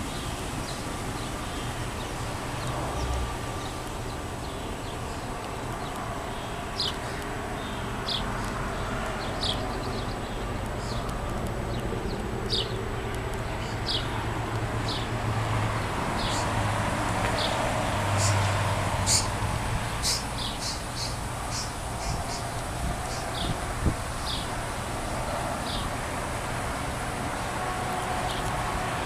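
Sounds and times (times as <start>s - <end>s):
vehicle engine humming: 0.0s - 29.0s
bird chirping: 18.2s - 19.4s, 20.0s - 22.5s, 23.1s - 23.6s.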